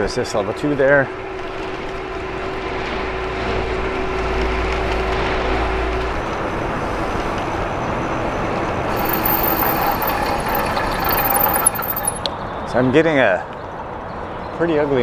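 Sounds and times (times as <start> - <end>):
bicycle disc brake squealing: 8.9 - 12.3.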